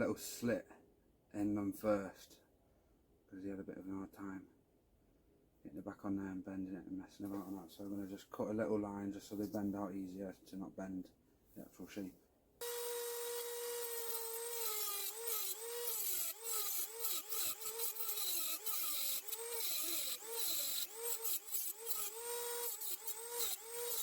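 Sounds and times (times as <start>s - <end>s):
rotary tool cutting metal: 12.6s - 24.0s.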